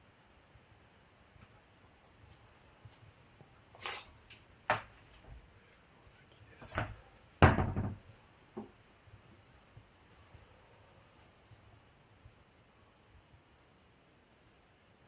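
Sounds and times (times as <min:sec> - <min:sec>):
heavy thud: 0:06.8 - 0:08.0.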